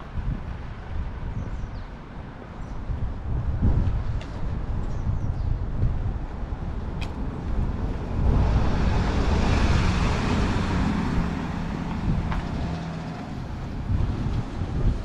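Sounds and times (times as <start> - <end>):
wind buffeting microphone: 0.0 - 15.0
car passing by: 6.6 - 15.0.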